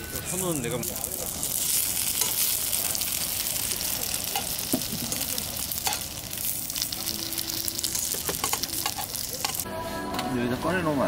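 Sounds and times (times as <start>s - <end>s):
buns sizzling in oil: 0.0s - 9.7s
metal tongs clicking on pan: 4.2s - 4.6s, 5.3s - 6.2s, 8.0s - 9.6s.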